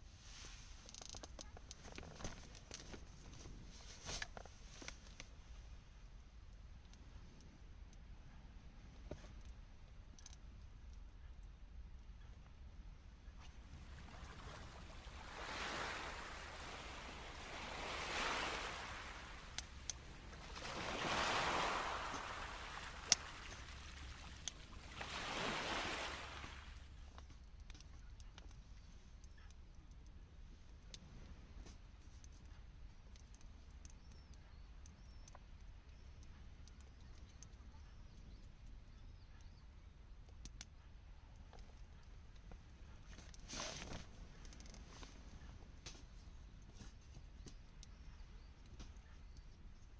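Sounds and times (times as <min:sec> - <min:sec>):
small waves washing on shore: 0:13.6 - 0:27.0
campfire crackling: 0:13.6 - 0:28.5.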